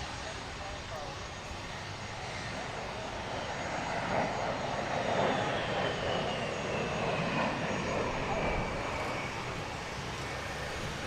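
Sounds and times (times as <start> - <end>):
piston aircraft engines droning: 0.0 - 11.0.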